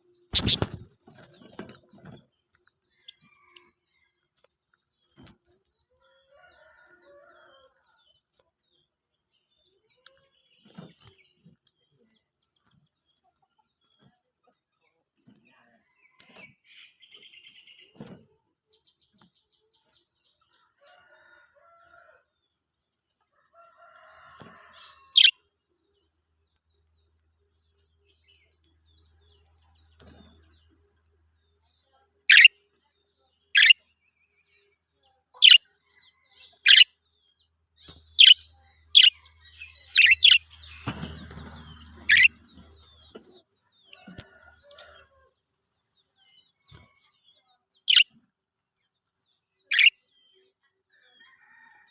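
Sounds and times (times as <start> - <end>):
budgerigars soft chatter: 0.0 - 3.8, 24.3 - 25.4, 28.2 - 45.1, 46.1 - 48.3, 49.2 - 51.9
budgerigars chirping: 0.3 - 0.8, 25.1 - 25.3, 33.6 - 33.8, 35.4 - 35.6, 36.5 - 36.9, 37.8 - 42.4, 49.7 - 49.9.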